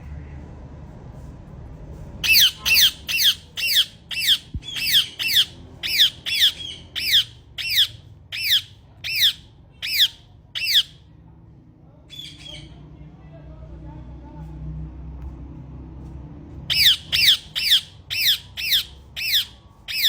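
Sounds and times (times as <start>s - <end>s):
parrot squawking: 2.2s - 11.0s, 16.7s - 20.0s.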